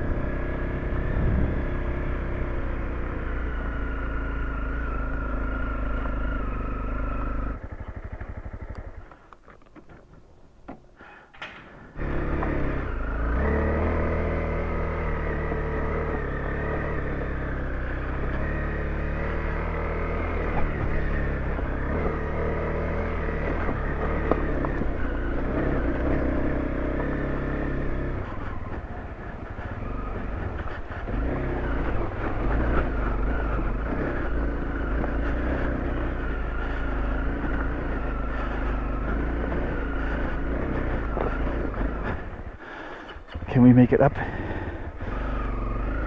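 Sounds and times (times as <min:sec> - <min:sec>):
motorcycle engine running: 0:00.0 - 0:10.1, 0:11.9 - 0:46.0.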